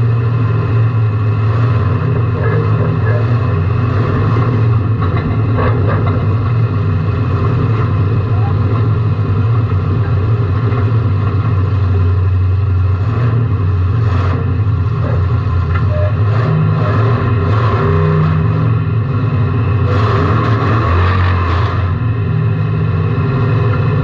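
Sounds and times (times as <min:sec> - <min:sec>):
car engine running hard: 0:00.0 - 0:24.0
knocks and rattles: 0:04.2 - 0:06.7.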